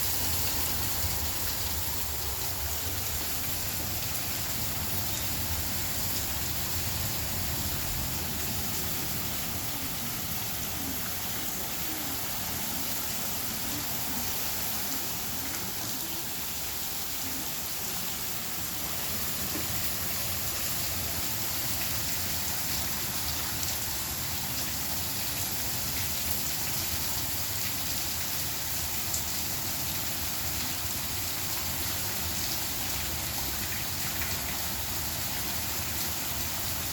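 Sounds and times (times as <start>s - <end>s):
rain falling steadily: 0.0s - 36.9s.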